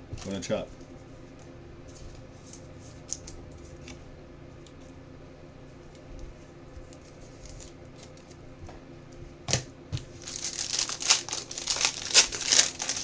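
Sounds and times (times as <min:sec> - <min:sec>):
plastic packaging crinkling: 0:10.0 - 0:13.0.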